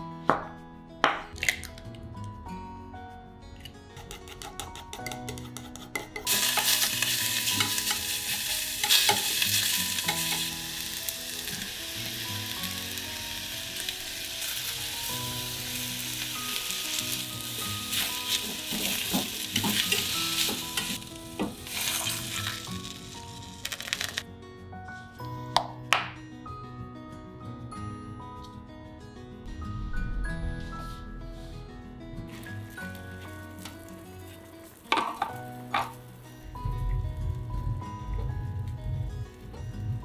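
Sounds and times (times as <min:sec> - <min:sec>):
soft background music: 0:00.0 - 0:40.0
food sizzling in a pot: 0:06.2 - 0:24.2, 0:32.3 - 0:36.4.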